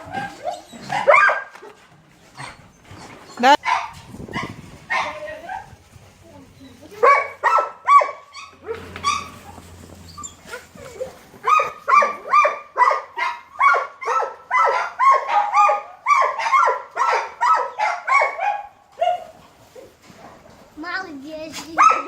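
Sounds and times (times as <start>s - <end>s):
dog barking high-pitched: 0.9s - 1.6s, 3.6s - 5.7s, 7.0s - 8.4s, 11.5s - 19.3s, 21.8s - 22.0s.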